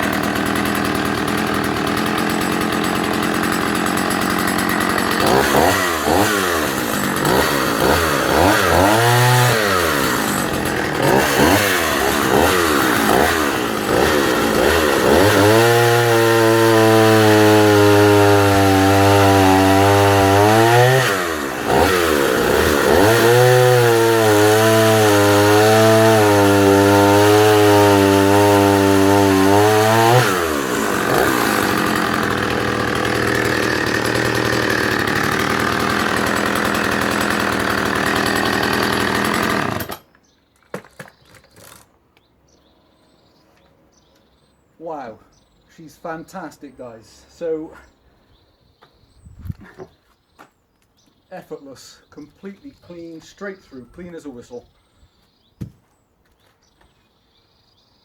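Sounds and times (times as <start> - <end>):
chainsaw revving and cutting log: 0.0 - 40.1.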